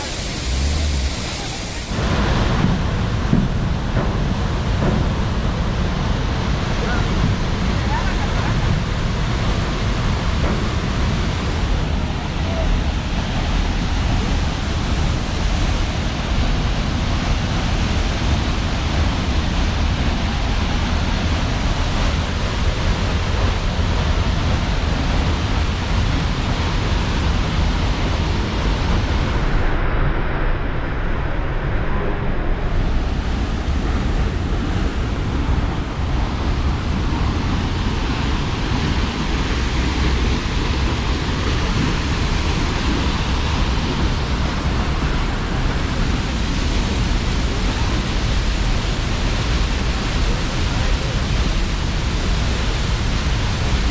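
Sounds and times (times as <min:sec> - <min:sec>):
waterfall roaring: 0:00.0 - 0:30.0, 0:32.2 - 0:53.9.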